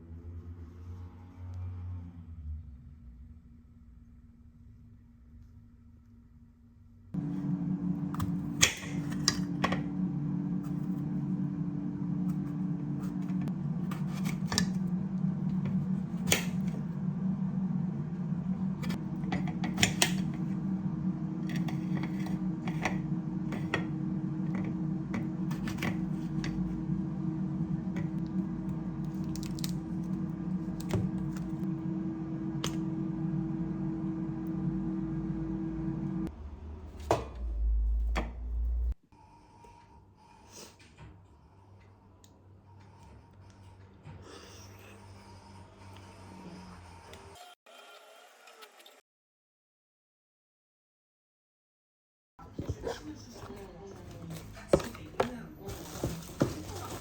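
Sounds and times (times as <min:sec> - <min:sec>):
steady low hum: 0:06.9 - 0:39.0.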